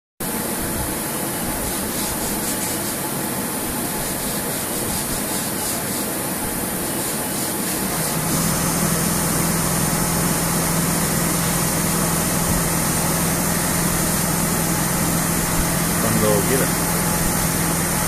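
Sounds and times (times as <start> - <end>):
machine running with a hiss: 0.2 - 18.0
steady low hum: 8.7 - 18.0.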